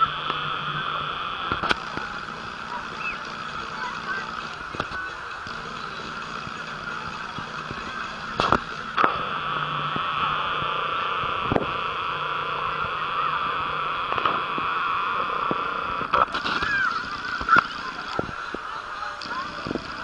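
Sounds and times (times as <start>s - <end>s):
high buzzing hum: 0.0s - 20.0s
sharp clicks and knocks: 1.4s - 3.7s.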